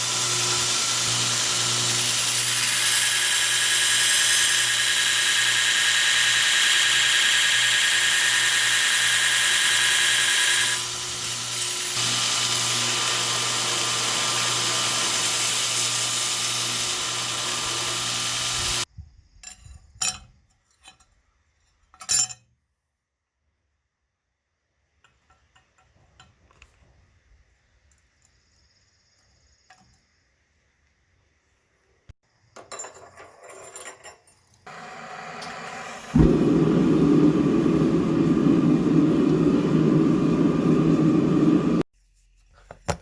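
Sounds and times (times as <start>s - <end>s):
electric saw cutting steel: 0.0s - 18.9s, 34.7s - 41.9s.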